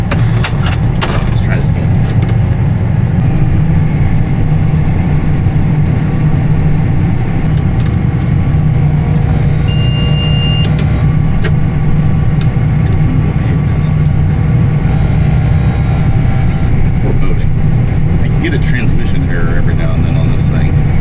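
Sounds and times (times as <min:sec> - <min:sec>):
tractor engine running: 0:00.0 - 0:21.0
high electronic warning tone: 0:08.8 - 0:11.2, 0:14.8 - 0:17.1.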